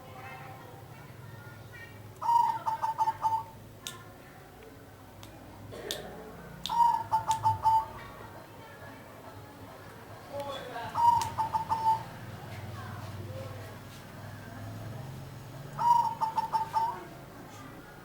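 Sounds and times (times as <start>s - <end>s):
dove cooing: 2.2s - 3.6s, 6.7s - 8.1s, 10.9s - 12.5s, 15.8s - 17.7s.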